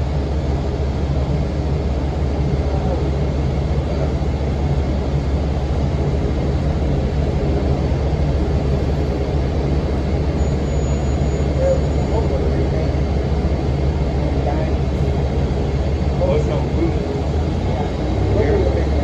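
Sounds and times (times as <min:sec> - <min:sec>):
bus diesel engine drone: 0:00.0 - 0:19.0
engine cooling fan rushing: 0:00.0 - 0:19.0.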